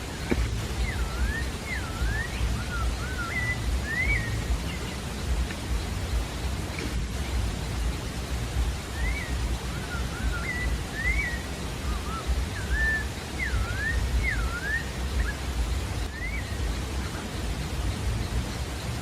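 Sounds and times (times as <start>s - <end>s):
bird singing whistled notes: 0.0s - 19.0s
steady hiss: 0.0s - 19.0s.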